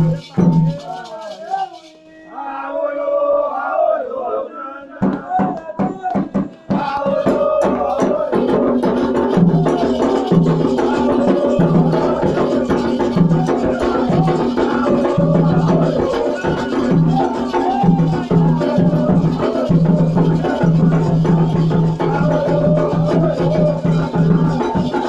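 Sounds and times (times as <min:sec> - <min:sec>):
hand drums rhythm: 0:00.0 - 0:01.9, 0:05.0 - 0:25.0
chanted vocal line: 0:00.0 - 0:25.0
voices singing: 0:00.0 - 0:25.0.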